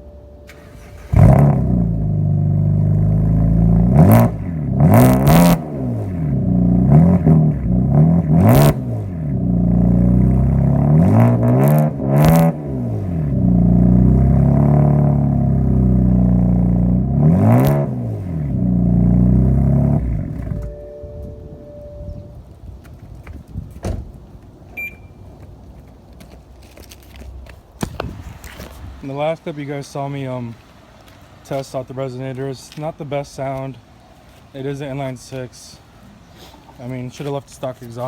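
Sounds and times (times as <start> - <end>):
car engine idling and revving: 0.0 - 22.2.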